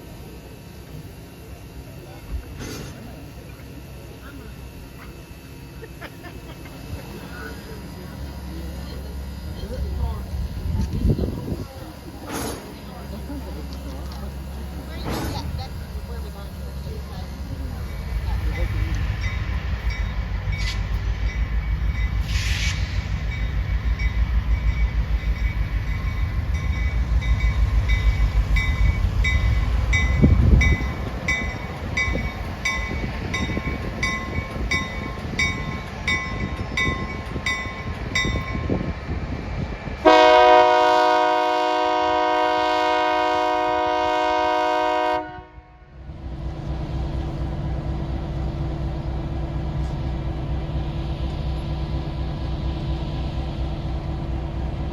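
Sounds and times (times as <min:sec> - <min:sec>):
train rumbling: 0:00.0 - 0:54.9
railroad crossing bell ringing: 0:11.8 - 0:22.4, 0:23.2 - 0:39.0
train horn blast: 0:40.0 - 0:46.0.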